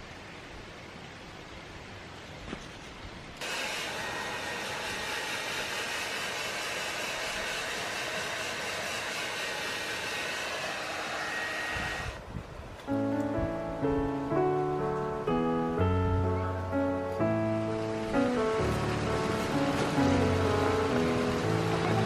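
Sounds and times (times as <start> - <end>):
hair dryer running: 3.4 - 12.2, 18.7 - 22.0
piano music: 12.9 - 22.0.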